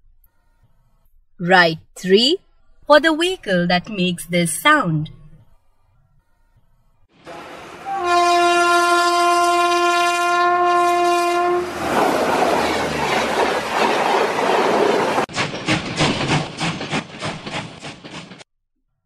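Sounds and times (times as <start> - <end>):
train horn blast: 7.2 - 11.8
passing train rushing: 7.2 - 18.4
wheels clacking on rail joints: 11.7 - 18.4.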